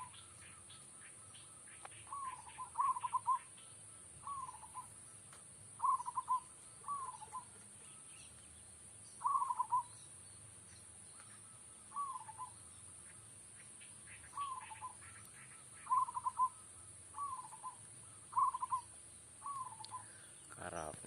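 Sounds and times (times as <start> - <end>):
dove cooing: 0.0 - 5.1, 5.8 - 8.1, 9.2 - 10.0, 11.2 - 12.6, 14.1 - 21.0
small birds chirping: 0.0 - 21.0.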